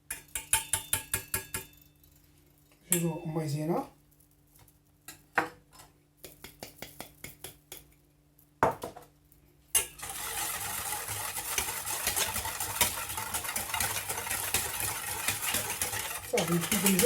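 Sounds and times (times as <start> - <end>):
utensil tapping a pot: 0.0 - 1.8, 6.2 - 8.0, 10.6 - 17.0
rapid whisking in a pot: 9.8 - 17.0.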